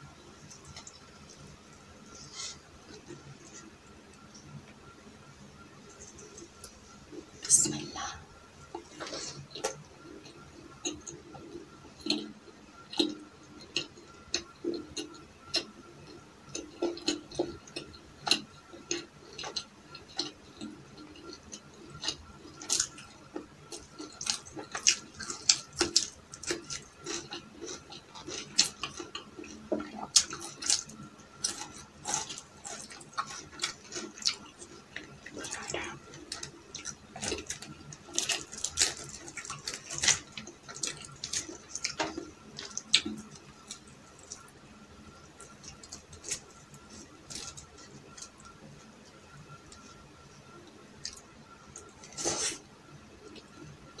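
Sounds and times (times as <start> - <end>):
wet chewing: 8.7 - 44.6, 45.2 - 50.0.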